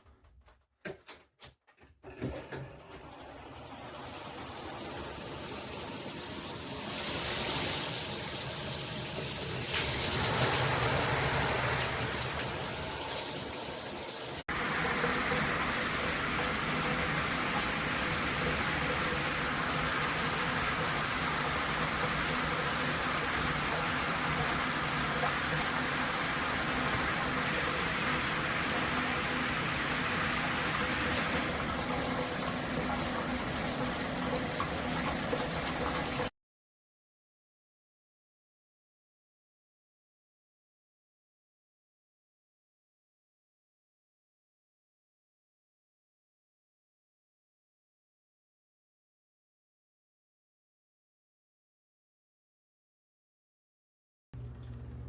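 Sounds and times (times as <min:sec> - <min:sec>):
water spraying from shower head: 0:03.2 - 0:36.3.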